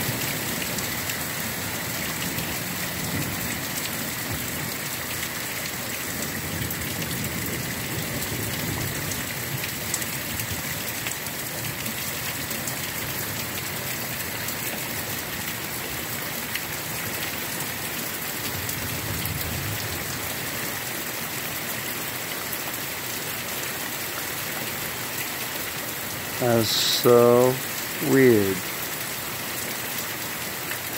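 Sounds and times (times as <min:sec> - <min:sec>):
heavy rain pouring: 0:00.0 - 0:30.9.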